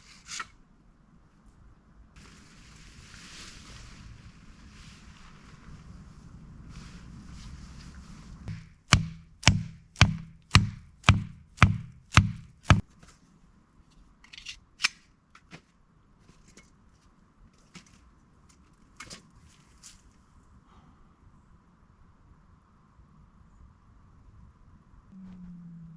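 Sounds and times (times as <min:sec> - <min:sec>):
hard ringing strikes: 0:08.5 - 0:12.8.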